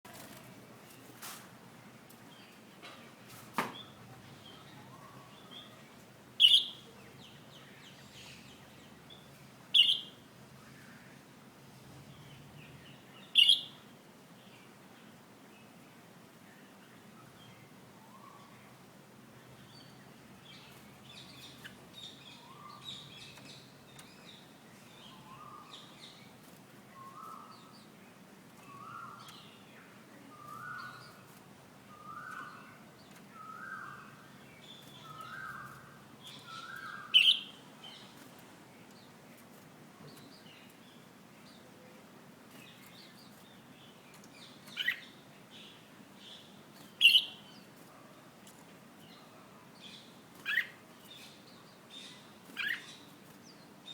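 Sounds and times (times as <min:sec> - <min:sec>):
bird short high chirps: 0:06.4 - 0:06.8, 0:09.8 - 0:10.1, 0:13.4 - 0:13.8
sharp loud bird calls: 0:06.4 - 0:06.9, 0:09.7 - 0:10.2, 0:13.3 - 0:13.8, 0:33.4 - 0:37.7, 0:46.9 - 0:47.4.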